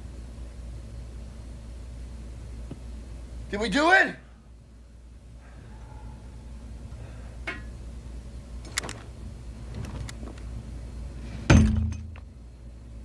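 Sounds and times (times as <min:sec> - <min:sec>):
low steady rumble: 0:00.0 - 0:13.0
heavy thud with low ring: 0:11.5 - 0:12.1.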